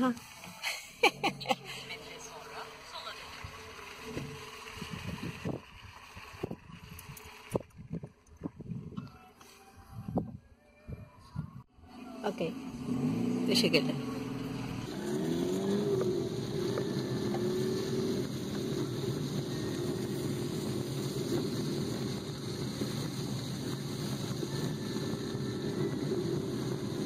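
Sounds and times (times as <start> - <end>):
car engine from inside cabin: 0.0 - 4.4, 12.3 - 27.0.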